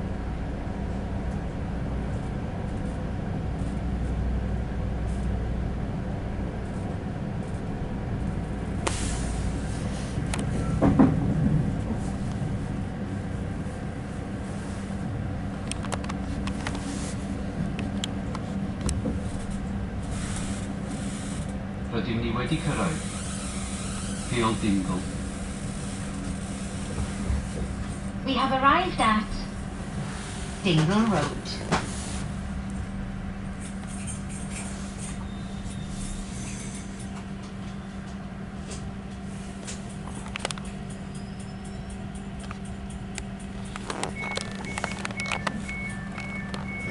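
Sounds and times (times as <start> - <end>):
train rumble and hum: 0.0 - 46.9
sharp high squeaks: 23.0 - 24.4, 40.9 - 42.0.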